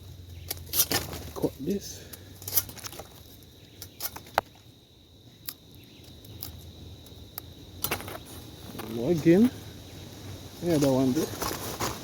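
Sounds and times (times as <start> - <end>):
crickets chirring: 0.0 - 12.0
sharp snaps and clicks: 5.4 - 7.5.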